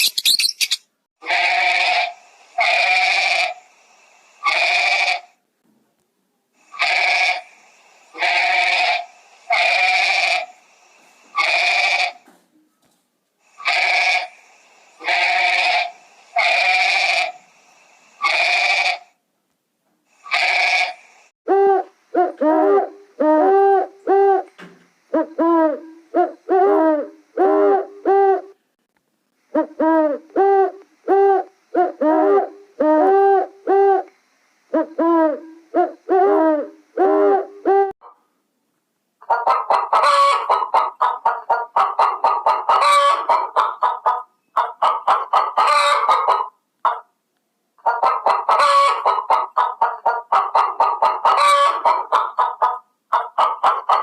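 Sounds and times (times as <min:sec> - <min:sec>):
harsh bleat-like animal cries: 0:01.2 - 0:03.6, 0:04.4 - 0:05.3, 0:06.7 - 0:07.5, 0:08.2 - 0:10.5, 0:11.4 - 0:12.2, 0:13.6 - 0:14.3, 0:15.0 - 0:17.4, 0:18.2 - 0:19.1, 0:20.2 - 0:21.0.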